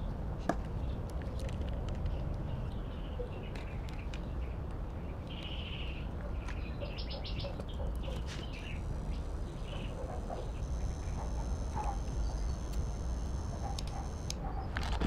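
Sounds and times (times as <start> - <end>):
clicks: 7.9 - 15.0
steady low rumble: 8.5 - 15.0.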